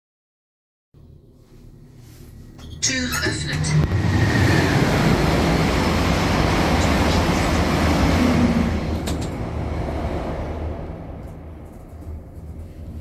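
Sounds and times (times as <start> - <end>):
high-speed train passing: 3.2 - 13.0.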